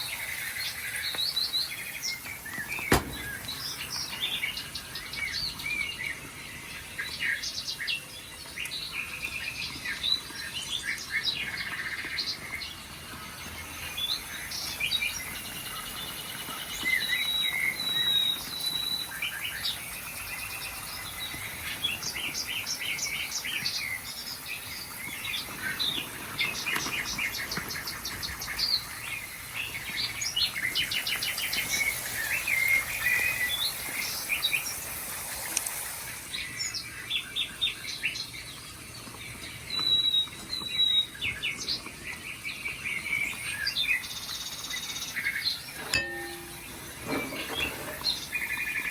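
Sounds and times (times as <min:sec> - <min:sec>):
songbirds chirping and singing: 0:00.0 - 0:34.8.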